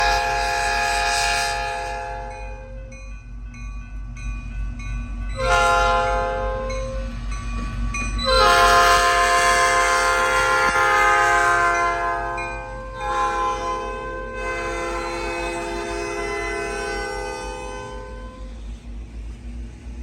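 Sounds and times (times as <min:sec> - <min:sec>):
locomotive air horn blasts: 0:00.0 - 0:02.7, 0:05.4 - 0:06.9, 0:08.3 - 0:18.5.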